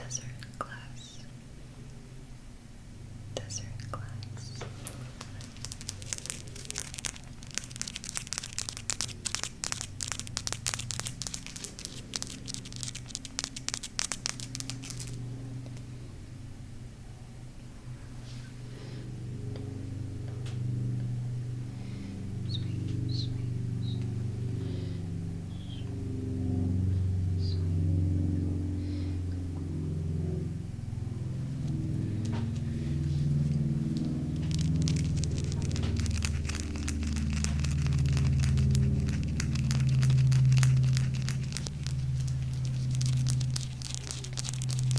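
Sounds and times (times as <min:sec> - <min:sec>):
crystal stones tapped and scratched: 0:05.2 - 0:15.2
low droning tones: 0:19.0 - 0:44.9.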